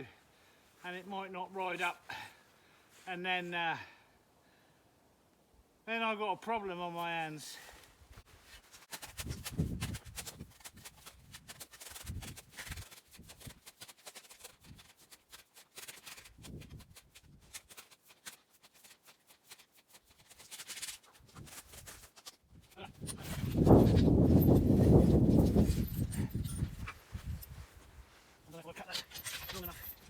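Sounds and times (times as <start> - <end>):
crunching footsteps in snow: 7.6 - 30.0.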